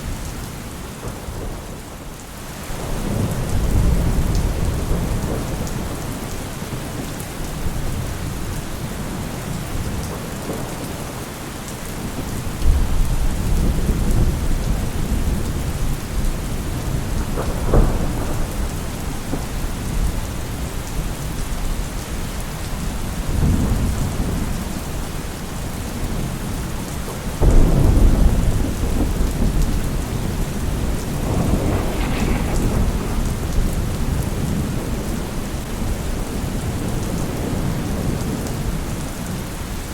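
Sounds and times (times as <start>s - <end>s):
steady rain falling: 0.0s - 39.9s
rolling thunder: 2.7s - 7.0s, 12.0s - 21.7s, 27.4s - 39.4s
sharp thunder crack: 27.4s - 36.0s.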